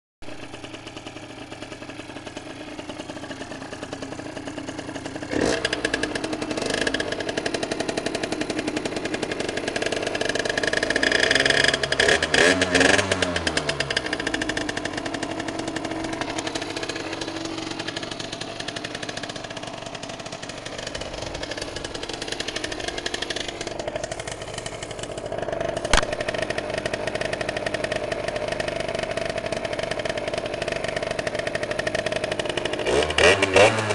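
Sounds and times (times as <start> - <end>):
two-stroke moped engine revving: 0.4 - 33.9
sharp snap: 25.9 - 26.5.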